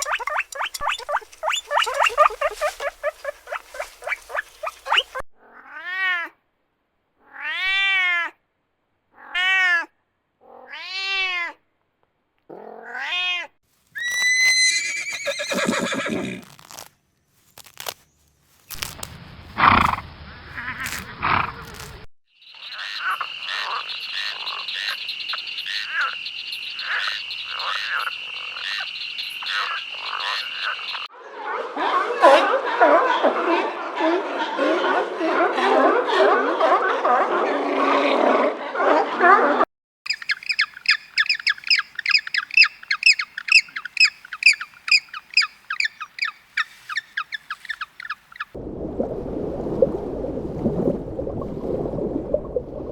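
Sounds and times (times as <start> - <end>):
animal calls rising and falling: 0.0 - 5.2, 14.0 - 16.9
high rapidly pulsing animal call: 0.0 - 5.2, 14.0 - 16.4, 40.1 - 48.6.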